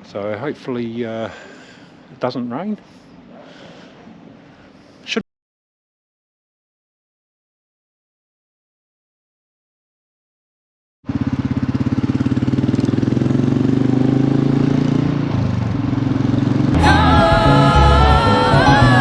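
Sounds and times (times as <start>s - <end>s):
motorcycle engine running: 11.1s - 14.4s
plucked string music: 16.8s - 19.0s.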